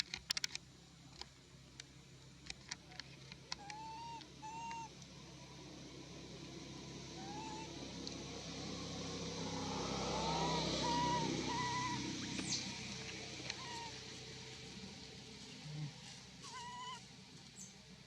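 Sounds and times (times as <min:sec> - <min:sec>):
passing motor vehicle rumble: 0:01.5 - 0:18.0
high squeaky calls: 0:03.6 - 0:04.9, 0:07.2 - 0:07.7, 0:10.1 - 0:12.8, 0:13.5 - 0:14.0, 0:16.4 - 0:17.0.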